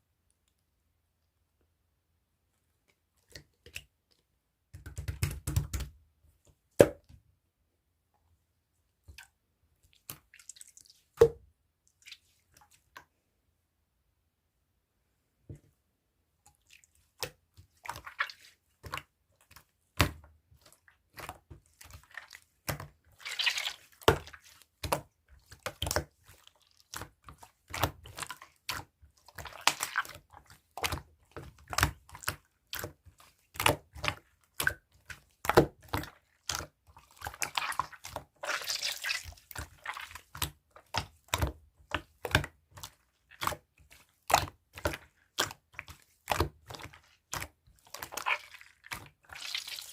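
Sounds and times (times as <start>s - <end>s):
slime squished by hand: 16.6s - 49.9s.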